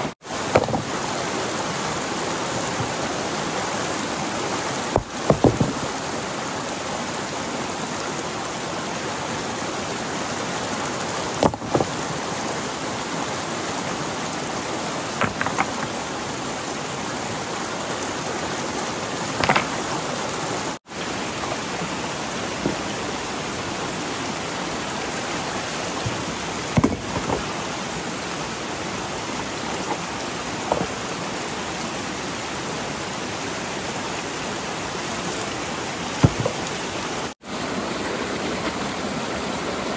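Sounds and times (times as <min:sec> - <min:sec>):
flowing water rushing: 0:00.0 - 0:39.9
sharp knocks and clicks: 0:15.2 - 0:15.9, 0:19.4 - 0:19.8, 0:26.8 - 0:27.5.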